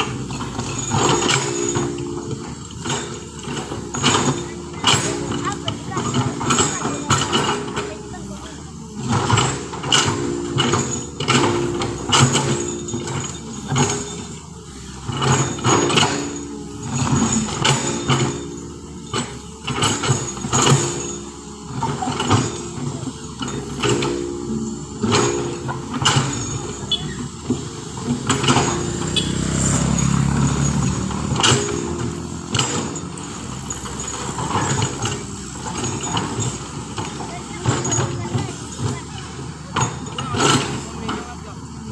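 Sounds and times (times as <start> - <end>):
metal knocks and clanks: 0.0 - 41.8
heavy vehicle engine running: 0.0 - 41.9
people's voices: 0.0 - 41.9.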